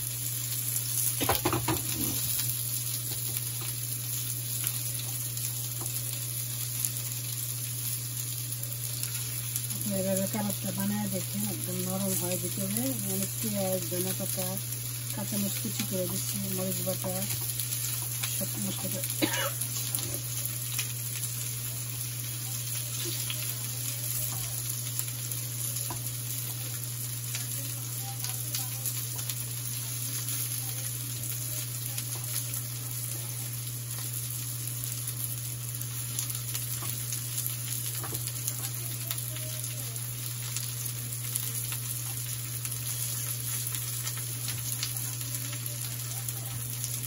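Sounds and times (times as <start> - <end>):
steady low hum: 0.0 - 33.0
patties sizzling in a pan: 0.0 - 47.0.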